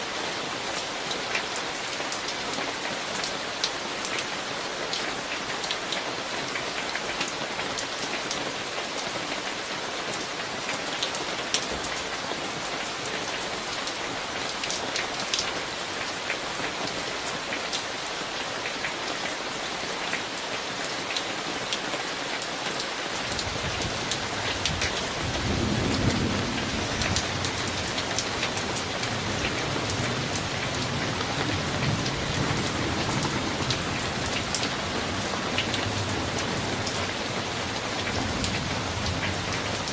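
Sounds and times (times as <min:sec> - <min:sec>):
steady rain: 0:00.0 - 0:39.9
thunder rumbling: 0:23.5 - 0:34.6.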